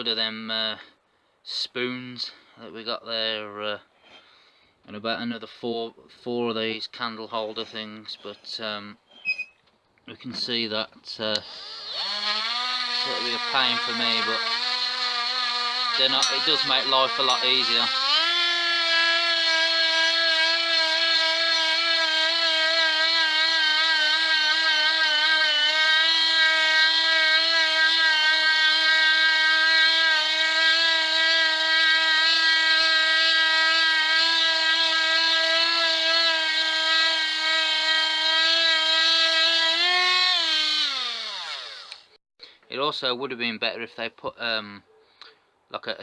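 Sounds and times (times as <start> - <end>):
rotary tool whining: 11.4 - 42.2.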